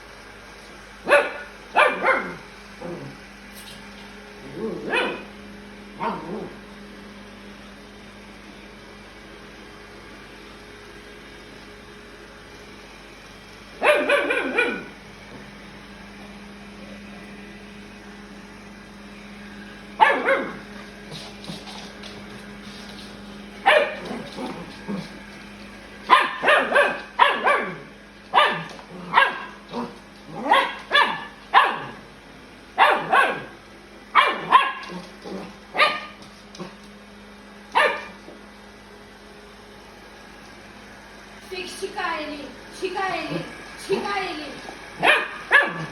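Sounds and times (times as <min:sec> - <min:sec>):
robot vacuum cleaner hum: 0:00.0 - 0:45.9
puppy barking: 0:01.1 - 0:02.4, 0:04.7 - 0:05.3, 0:06.0 - 0:06.5, 0:13.8 - 0:14.9, 0:20.0 - 0:20.6, 0:23.6 - 0:24.6, 0:26.1 - 0:32.0, 0:32.8 - 0:33.5, 0:34.1 - 0:35.0, 0:35.7 - 0:36.2, 0:37.7 - 0:38.2, 0:45.0 - 0:45.9.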